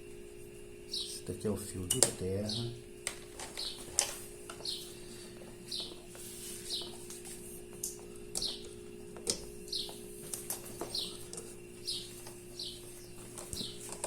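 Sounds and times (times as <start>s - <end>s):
bird chirping: 0.9s - 1.4s, 2.3s - 2.8s, 3.5s - 3.9s, 4.6s - 7.0s, 8.4s - 8.8s, 9.6s - 14.0s.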